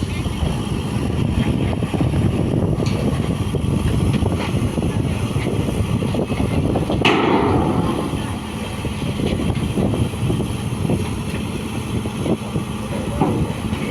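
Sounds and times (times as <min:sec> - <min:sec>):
heavy machinery rumbling: 0:00.0 - 0:13.9.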